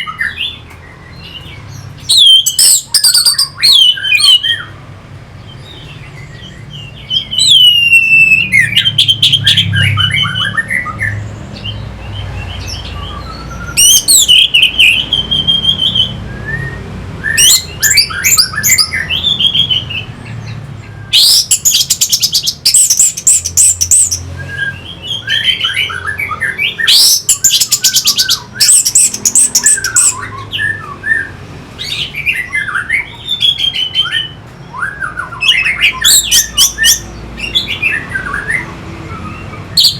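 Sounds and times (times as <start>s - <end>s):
high chattering bird trill: 0.0s - 4.7s, 17.4s - 39.9s
thrush singing whistled phrases: 0.0s - 4.8s, 5.8s - 11.2s, 12.2s - 39.9s.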